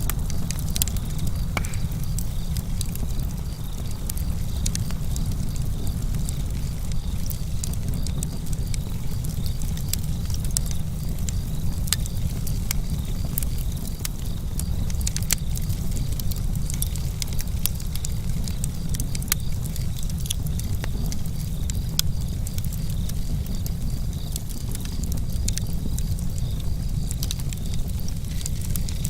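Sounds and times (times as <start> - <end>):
campfire crackling: 0.0 - 29.0
crickets chirping: 0.1 - 29.0.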